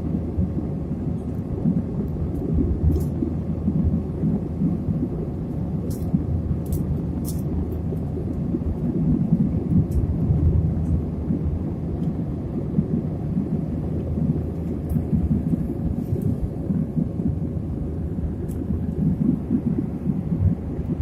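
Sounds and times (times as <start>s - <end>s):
airliner engine rumble: 0.0s - 21.0s.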